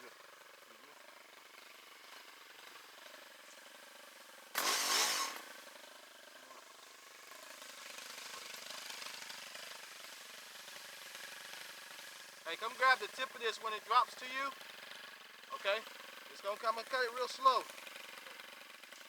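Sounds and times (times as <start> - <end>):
chainsaw engine revving: 4.5 - 19.0.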